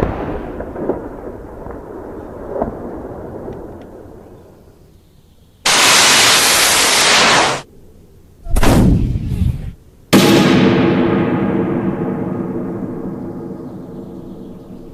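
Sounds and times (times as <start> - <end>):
burst of hiss: 5.6 - 7.6
short low blast: 8.4 - 14.0.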